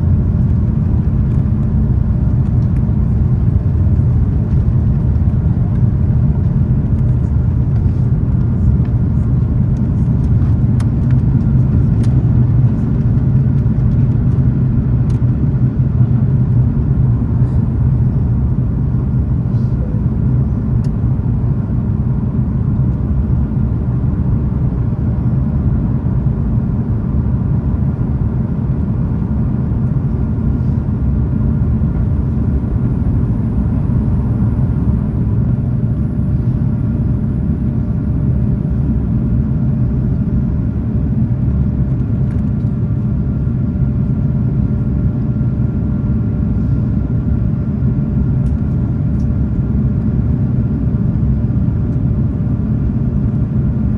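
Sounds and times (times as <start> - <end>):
jet engine drone in cabin: 0.0 - 53.9.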